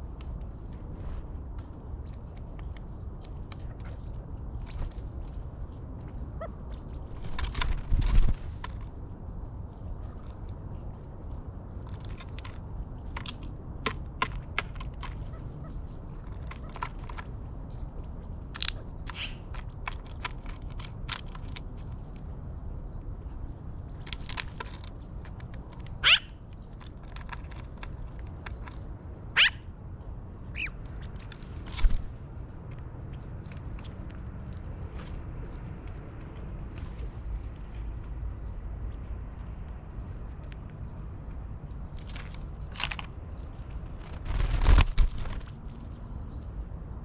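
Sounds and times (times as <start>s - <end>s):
birds pecking seed clicks: 6.8s - 22.5s, 23.8s - 29.5s, 30.4s - 36.8s, 39.4s - 46.0s
upward-sweeping bird calls: 26.0s - 26.4s, 29.4s - 29.6s, 30.5s - 30.8s.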